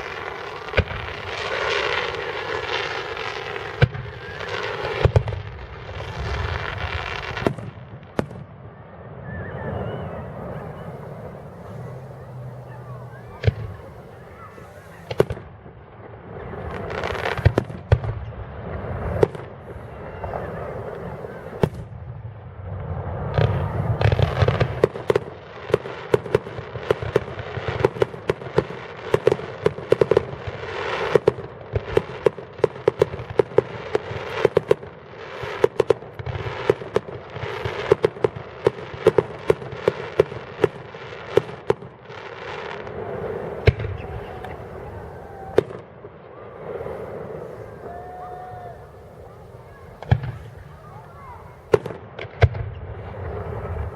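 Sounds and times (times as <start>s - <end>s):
fireworks bangs and pops: 0.0s - 8.6s, 10.2s - 53.9s
fireworks crackling: 0.0s - 53.9s
deep firework boom: 9.7s - 25.2s, 42.8s - 53.9s.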